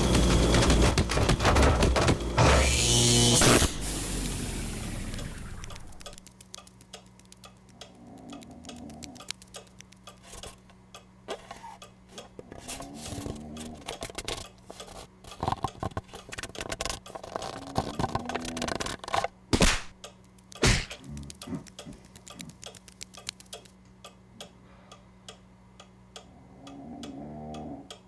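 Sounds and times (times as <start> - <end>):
faint low hum: 4.5 - 28.0
quick light ticking steps: 5.6 - 12.4, 19.9 - 26.3.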